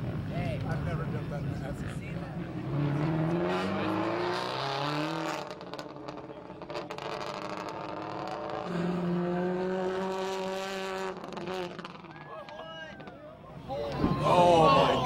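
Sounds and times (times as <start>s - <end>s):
rally car engine revving: 1.8s - 12.2s.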